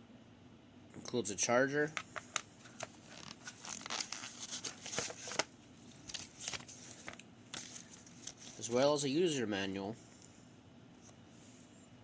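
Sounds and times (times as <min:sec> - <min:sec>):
packaging crinkling and rustling: 0:02.3 - 0:08.8.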